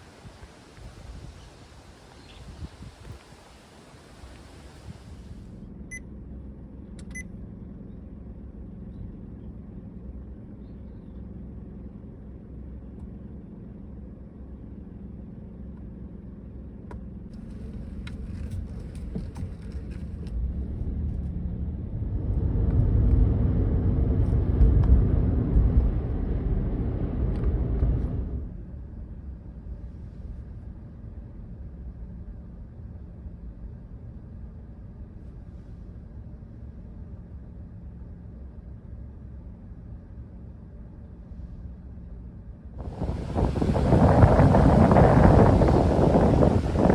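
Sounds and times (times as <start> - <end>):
car road and engine rumble: 0.0 - 34.2, 42.6 - 46.9
loud rush: 42.8 - 46.9.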